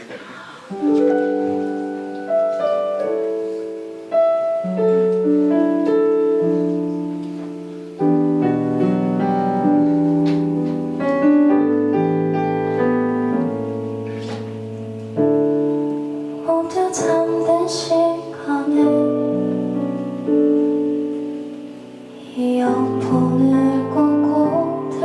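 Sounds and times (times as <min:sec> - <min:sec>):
slow piano chords: 0:00.0 - 0:25.0.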